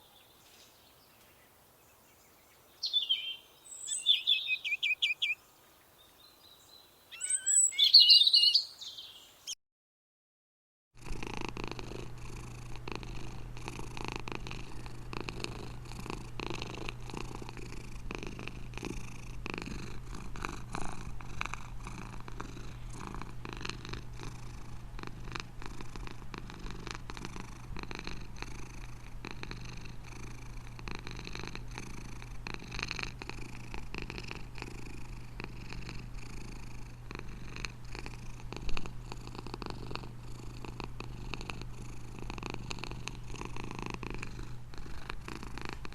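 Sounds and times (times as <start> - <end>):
cat purring: 11.0 - 45.9.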